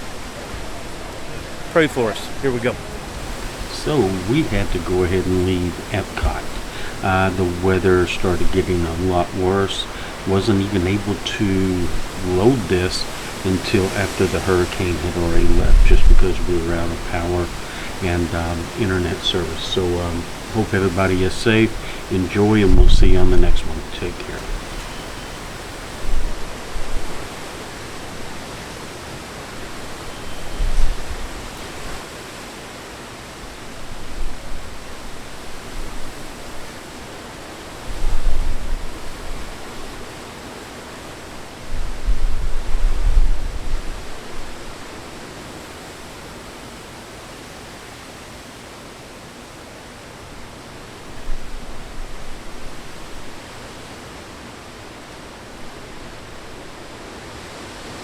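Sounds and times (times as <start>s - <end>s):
wind buffeting microphone: 0.0s - 32.1s, 33.5s - 40.6s, 41.4s - 45.4s
heavy rain hissing: 0.0s - 58.0s.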